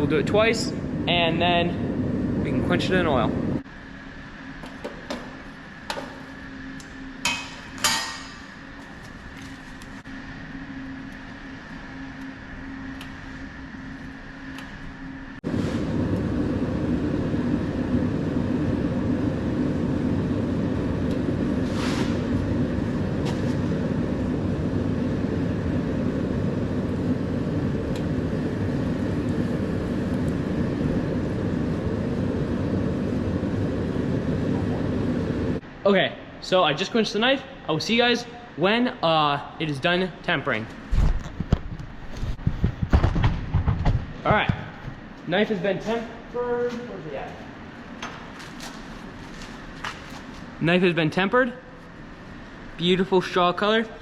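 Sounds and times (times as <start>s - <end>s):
steady hum: 0.0s - 54.0s
forge roaring: 15.2s - 35.6s.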